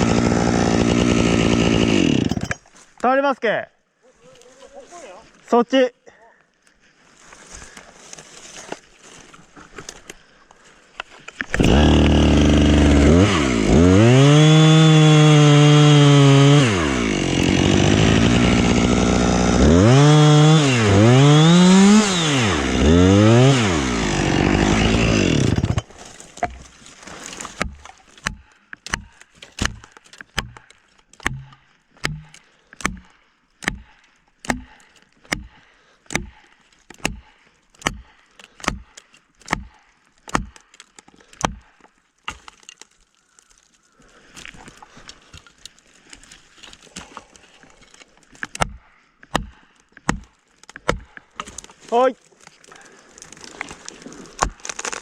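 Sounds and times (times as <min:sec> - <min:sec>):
chainsaw cutting: 0:00.0 - 0:02.6, 0:11.5 - 0:38.9, 0:52.7 - 0:55.0
sharp knocks: 0:31.2 - 0:33.1.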